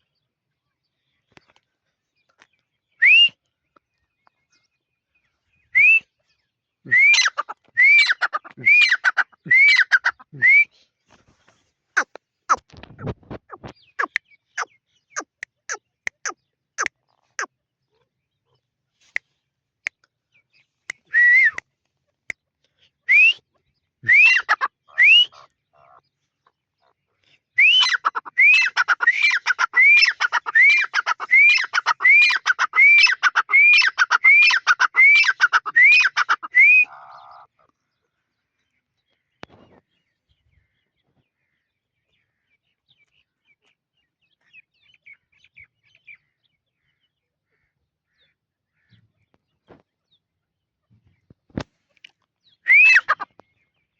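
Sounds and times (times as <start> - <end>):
bird whistling rising calls: 3.0 - 3.4, 5.7 - 6.1, 6.8 - 10.7, 23.1 - 23.4, 24.1 - 25.4, 27.6 - 37.3, 52.6 - 53.3.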